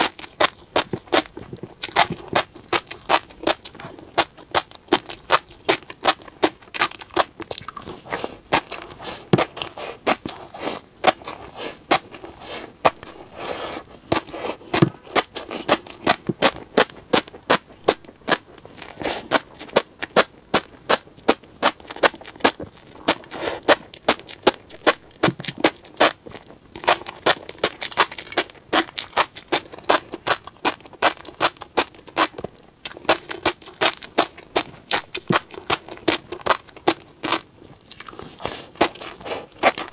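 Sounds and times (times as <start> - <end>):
fish roe popping while chewed: 0.0 - 39.9.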